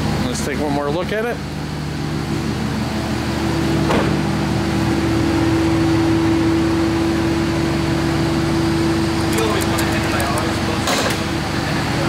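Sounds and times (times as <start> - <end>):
car engine idling: 4.4 - 11.9.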